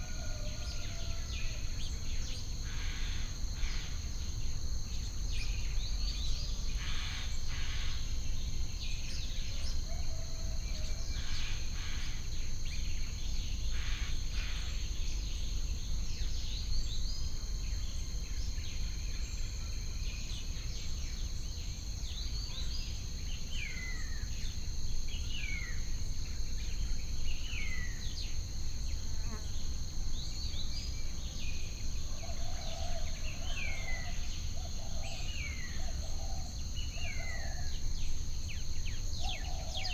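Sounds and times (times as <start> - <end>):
insects buzzing: 10.9 - 39.9.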